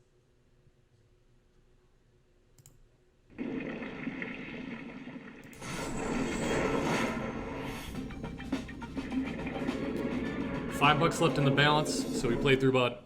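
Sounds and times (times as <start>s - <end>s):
click: 2.5s - 2.8s
rushing water-like sound effect: 3.3s - 12.6s.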